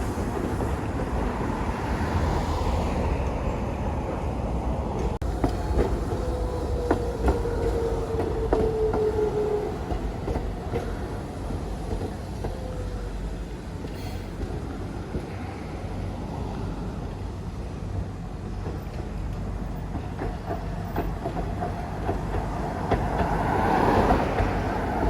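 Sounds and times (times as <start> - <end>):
train rumbling on rails: 0.0 - 25.0
train whine: 0.0 - 25.0.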